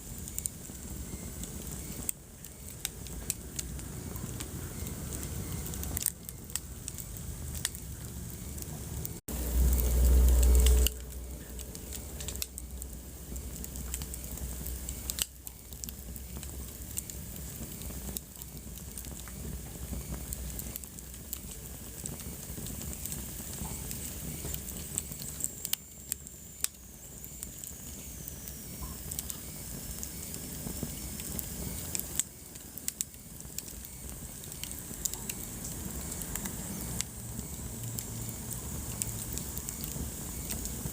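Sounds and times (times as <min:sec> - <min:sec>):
wood fire crackling and popping: 0:00.0 - 0:40.9
loud low rumble: 0:07.3 - 0:13.8.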